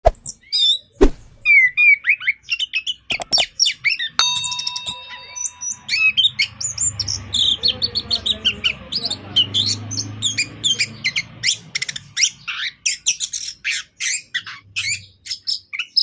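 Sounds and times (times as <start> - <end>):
bird singing: 0.3 - 16.0
sharp clicks: 3.1 - 3.5.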